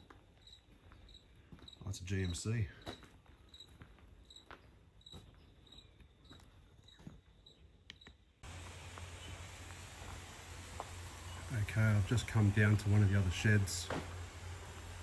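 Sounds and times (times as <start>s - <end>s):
cricket chirping: 0.0s - 8.2s
steady hiss and low hum: 8.4s - 15.0s.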